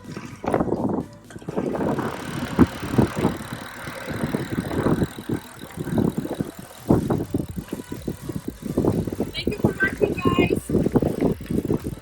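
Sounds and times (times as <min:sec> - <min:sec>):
bicycle road noise: 0:00.0 - 0:12.0
wind on microphone: 0:00.0 - 0:12.0.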